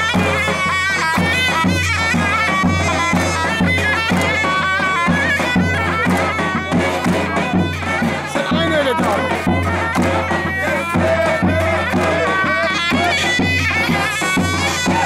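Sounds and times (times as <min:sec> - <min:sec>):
shrill reed melody: 0:00.0 - 0:15.0
steady drum beat: 0:00.0 - 0:15.0.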